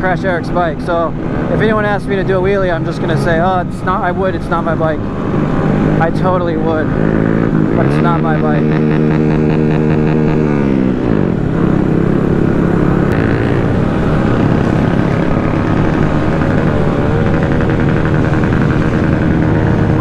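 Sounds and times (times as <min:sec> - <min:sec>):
small motorcycle engines running: 0:00.0 - 0:20.0
steady low rumble: 0:07.5 - 0:20.0.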